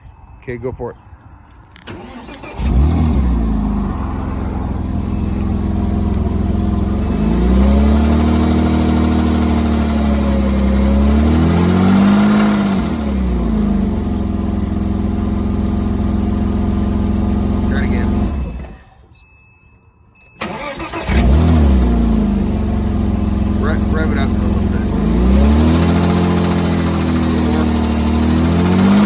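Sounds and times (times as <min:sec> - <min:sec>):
car engine idling and revving: 0:01.5 - 0:19.1, 0:20.4 - 0:29.0
engine knocking: 0:05.1 - 0:18.6, 0:22.6 - 0:29.0.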